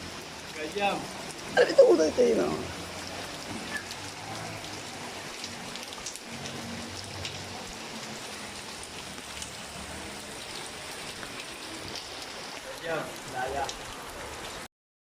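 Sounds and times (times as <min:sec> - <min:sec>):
steady rain hissing: 0:00.0 - 0:14.7
raindrop ticks: 0:02.7 - 0:14.6.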